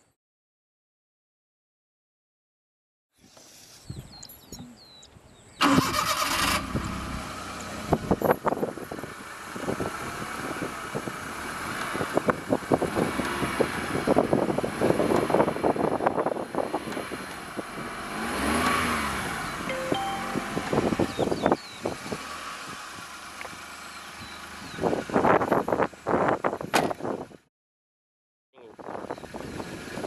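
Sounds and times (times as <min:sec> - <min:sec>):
car engine cranking and revving: 0:05.6 - 0:27.4.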